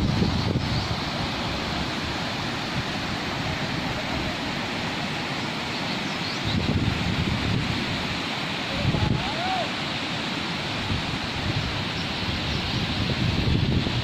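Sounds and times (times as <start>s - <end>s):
wind buffeting microphone: 0.0s - 4.4s, 6.4s - 9.3s, 10.7s - 14.0s
water rushing: 0.0s - 14.0s.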